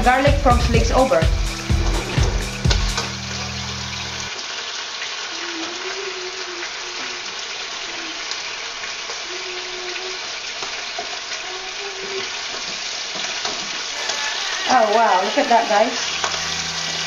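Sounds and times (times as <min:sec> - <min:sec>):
frog legs sizzling in a pan: 0:00.0 - 0:17.0.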